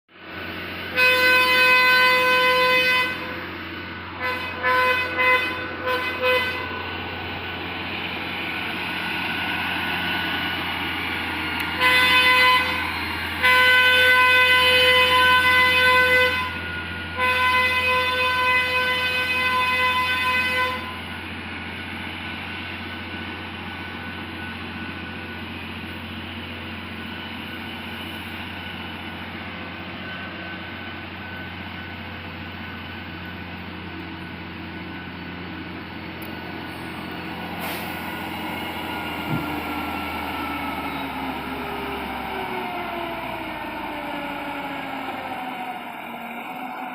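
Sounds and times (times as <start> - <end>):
truck engine under load: 0.1 - 46.9
truck horn: 0.8 - 7.2, 11.6 - 21.3, 36.7 - 42.8.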